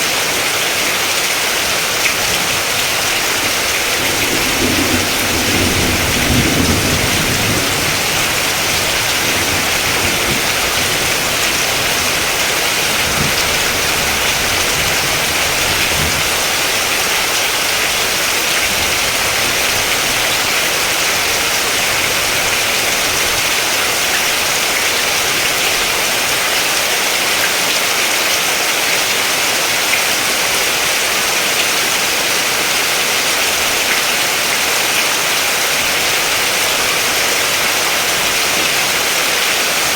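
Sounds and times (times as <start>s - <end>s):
steady rain hiss: 0.0s - 39.9s
low rumble of thunder: 2.4s - 23.5s.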